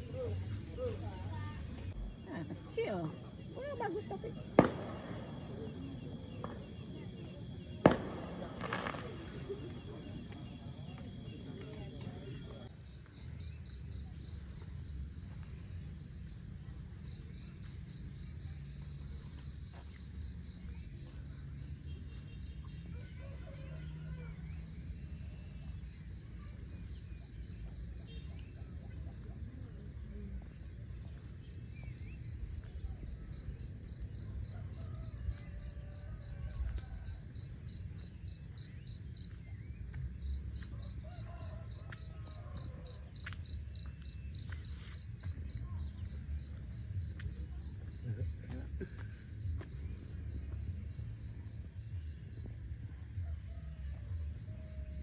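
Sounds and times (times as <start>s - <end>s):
insects buzzing: 0.0s - 2.9s
crickets trilling: 0.0s - 52.7s.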